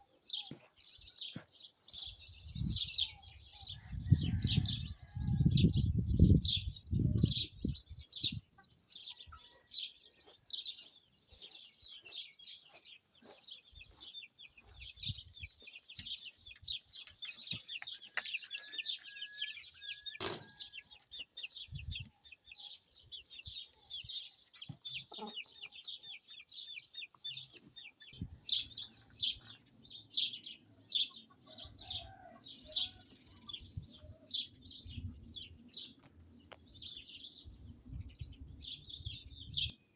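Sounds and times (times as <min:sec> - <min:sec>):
small birds chirping: 0:00.0 - 0:39.9
wind rumbling on microphone: 0:02.2 - 0:08.6, 0:14.7 - 0:15.6, 0:21.5 - 0:22.1, 0:28.2 - 0:29.3, 0:33.4 - 0:35.9, 0:36.6 - 0:39.7.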